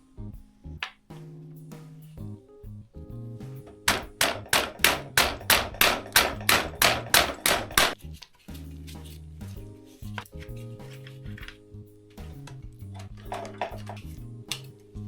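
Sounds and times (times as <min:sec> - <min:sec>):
background music: 0:00.0 - 0:15.0
hammer striking metal: 0:03.8 - 0:08.0.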